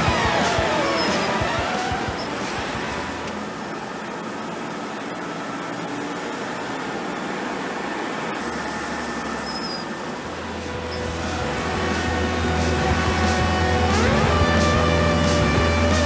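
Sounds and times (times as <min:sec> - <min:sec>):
background music: 0:00.0 - 0:03.3, 0:10.4 - 0:16.0
truck engine and road noise: 0:00.0 - 0:16.0.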